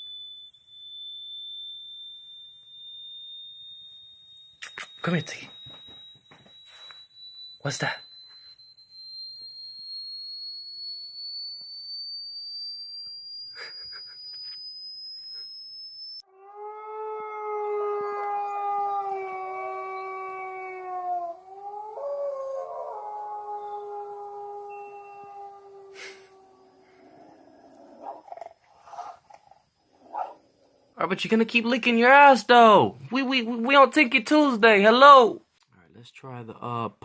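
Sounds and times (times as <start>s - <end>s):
dog howling: 16.3s - 29.2s, 30.0s - 30.8s.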